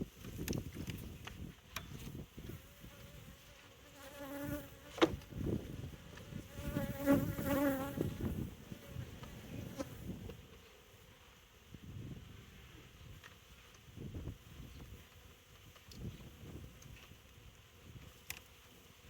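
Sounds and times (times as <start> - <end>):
honeybees buzzing: 2.0 - 11.6.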